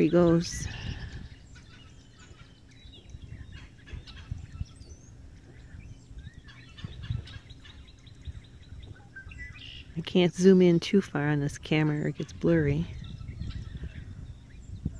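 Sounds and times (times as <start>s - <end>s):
faint bird calls: 0.0s - 10.0s
low uneven rumble: 0.0s - 14.9s.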